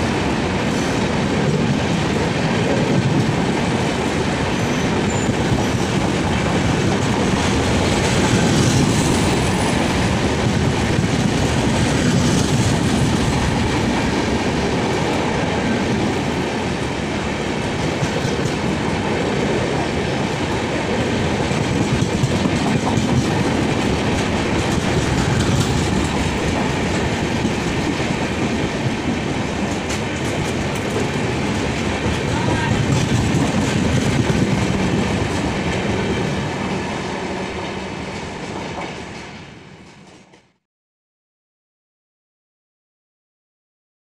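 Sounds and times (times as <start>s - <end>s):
train wheels rumbling and clattering: 0.0s - 40.6s.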